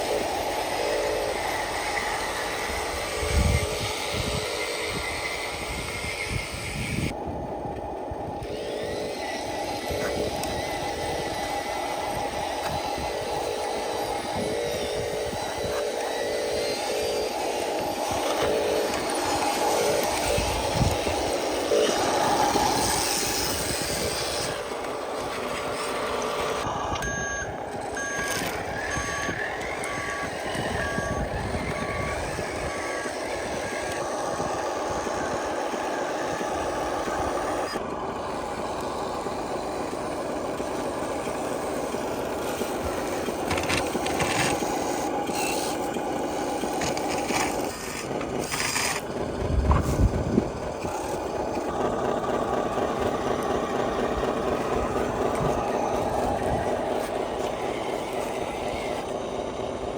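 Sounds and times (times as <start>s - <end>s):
remote-control truck running: 0.0s - 59.9s
reversing alarm beeping: 26.5s - 36.2s.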